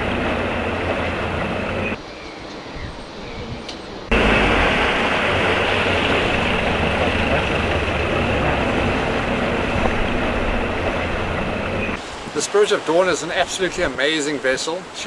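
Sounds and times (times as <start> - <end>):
boat engine drone: 0.0 - 2.0, 4.0 - 12.2
wind noise: 2.4 - 12.4
rushing water: 4.1 - 15.0.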